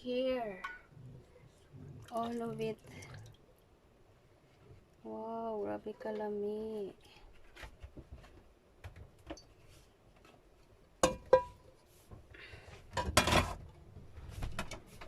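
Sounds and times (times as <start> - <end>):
dishes and utensils clattering: 11.0 - 11.6, 12.9 - 13.6.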